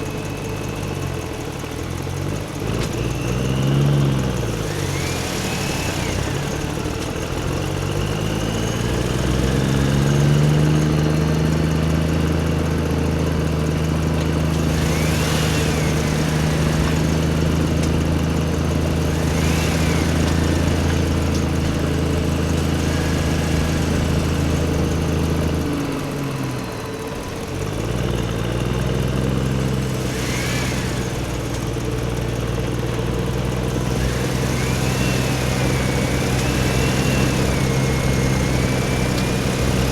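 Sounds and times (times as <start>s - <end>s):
toy engine running: 3.0s - 10.7s, 14.4s - 27.2s, 29.6s - 32.1s, 33.7s - 39.9s.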